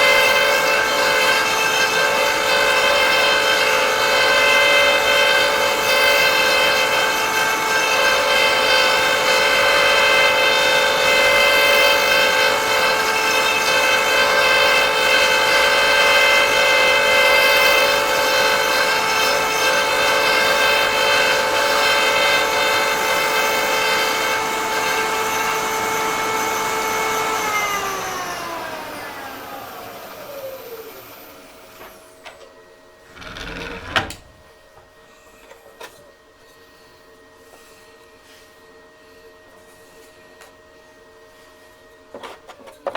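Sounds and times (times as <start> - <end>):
power tool motor whining: 0.0 - 32.2, 33.0 - 34.3.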